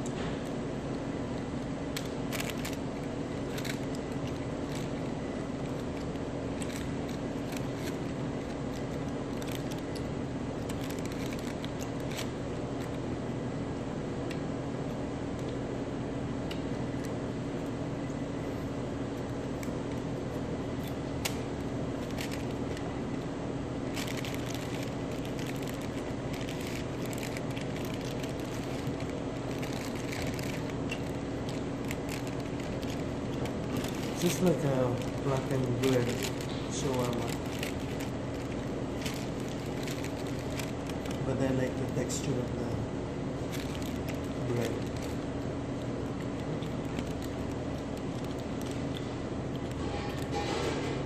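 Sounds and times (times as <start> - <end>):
crisp clicks and crackles: 0.0 - 13.0, 19.1 - 42.8, 43.4 - 51.0
low mechanical hum: 0.0 - 51.0
chewing and crunching food: 2.0 - 13.0, 22.0 - 42.0, 43.4 - 51.0.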